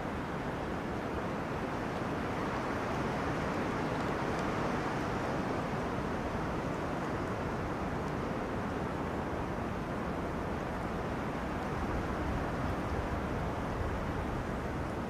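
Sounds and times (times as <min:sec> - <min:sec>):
wind rushing through trees: 0:00.0 - 0:15.0.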